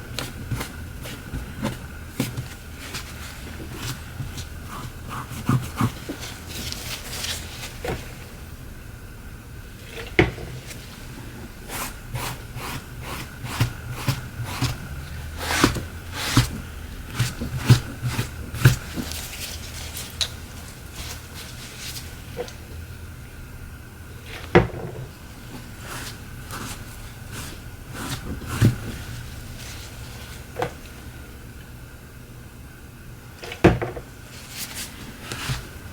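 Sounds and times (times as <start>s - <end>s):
steady low hum: 0.0s - 33.4s.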